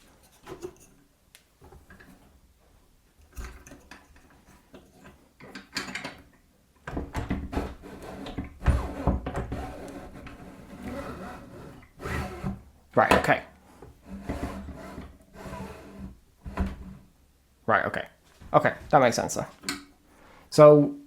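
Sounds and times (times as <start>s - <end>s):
pillar drill handle clunks and rattles: 3.3s - 6.3s.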